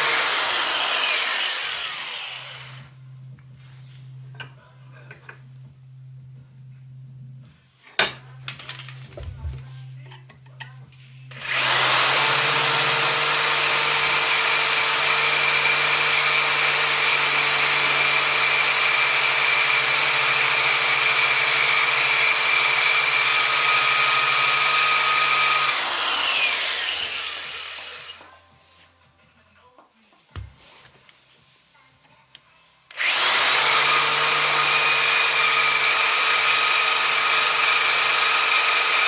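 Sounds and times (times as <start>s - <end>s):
power tool whining on steel: 0.0s - 2.9s, 11.3s - 28.3s, 32.9s - 39.0s.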